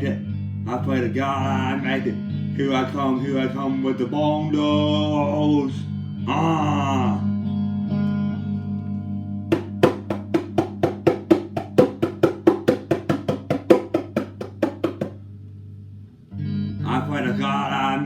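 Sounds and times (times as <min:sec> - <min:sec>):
bongos played by hand: 0:09.5 - 0:15.2.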